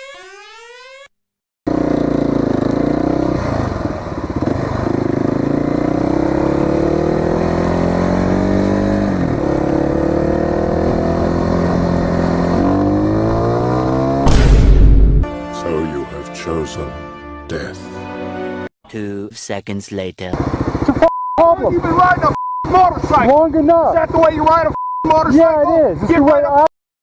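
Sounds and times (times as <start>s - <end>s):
motorcycle engine accelerating: 1.7s - 15.3s, 20.4s - 24.6s.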